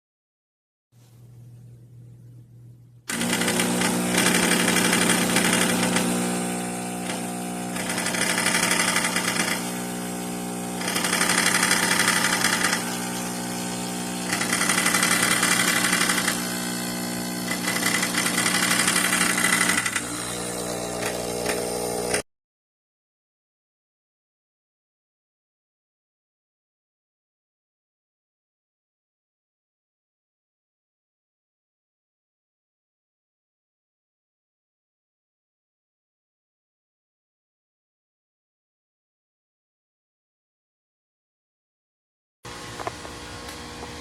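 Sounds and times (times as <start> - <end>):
espresso machine pump humming: 3.1 - 22.2, 42.5 - 44.0.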